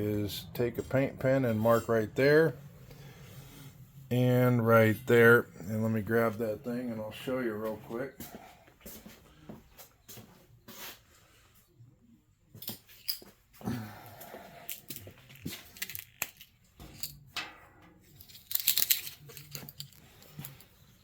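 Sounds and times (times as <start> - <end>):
metal clicks and clinks: 18.2 - 20.7.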